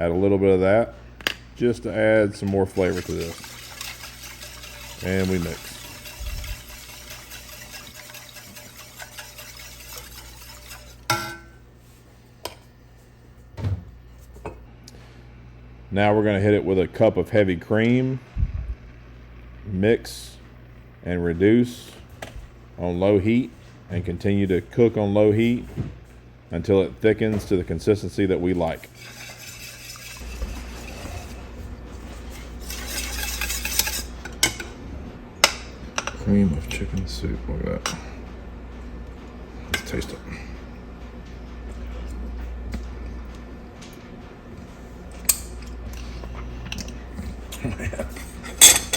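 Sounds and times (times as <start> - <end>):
whisk stirring in a pot: 2.3 - 11.4, 28.6 - 34.3
whisk wires ticking against pot: 2.3 - 11.4.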